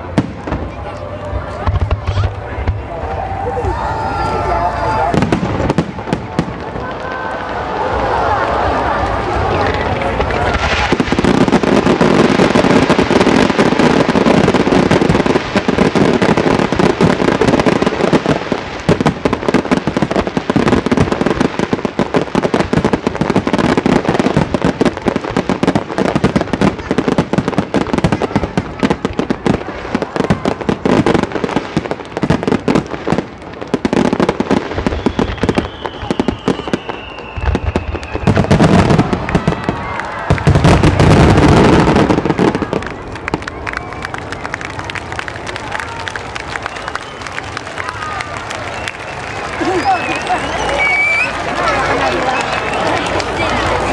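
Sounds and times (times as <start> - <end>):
fireworks bursting and crackling: 0.0 - 53.9
falling whistle: 34.9 - 38.4, 48.7 - 51.4.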